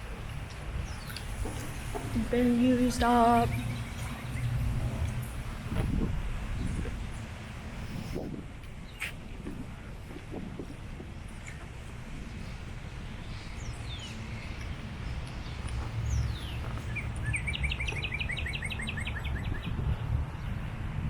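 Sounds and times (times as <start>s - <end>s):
steady low rumble: 0.0s - 21.0s
birds whistling: 2.9s - 4.9s, 13.2s - 19.8s.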